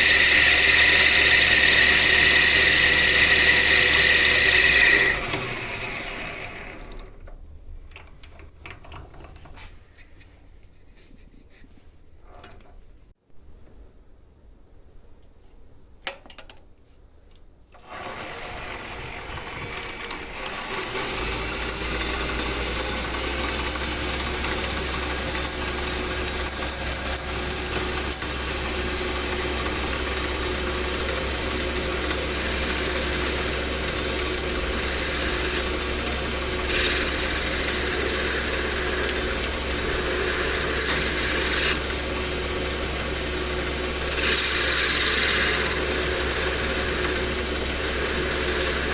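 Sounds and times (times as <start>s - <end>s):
small electric motor running: 0.0s - 6.8s, 17.9s - 48.9s
clicks and rattles: 6.8s - 9.6s, 18.6s - 25.8s.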